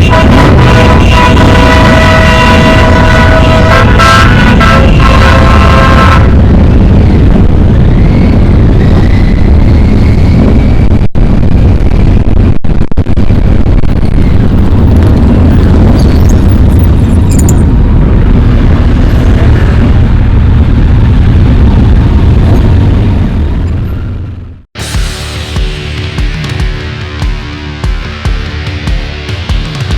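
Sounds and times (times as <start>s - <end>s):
motorcycle engines rumbling: 0.0s - 12.4s, 13.2s - 29.9s
microphone noise: 0.0s - 24.9s.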